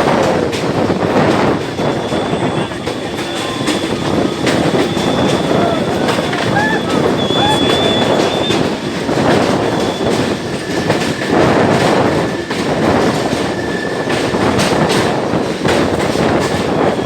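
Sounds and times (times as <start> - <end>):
train wheels rumbling: 0.0 - 17.0
wheels clacking over rail joints: 0.0 - 17.0
high wheel squeal: 1.6 - 10.9.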